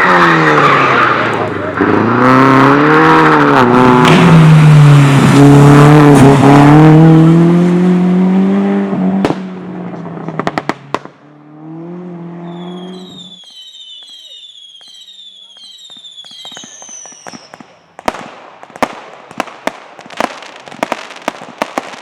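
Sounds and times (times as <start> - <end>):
competition car engine revving: 0.0 - 13.2.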